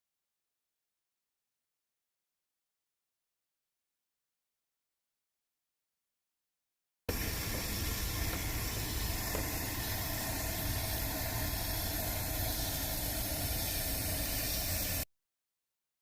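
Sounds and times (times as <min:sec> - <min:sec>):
compressed-air spray hiss: 0:07.1 - 0:15.1.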